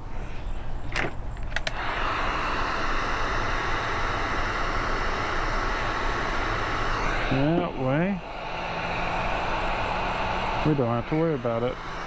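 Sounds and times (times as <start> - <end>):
clicks: 0.9 - 1.8
heat gun blowing: 1.0 - 12.0.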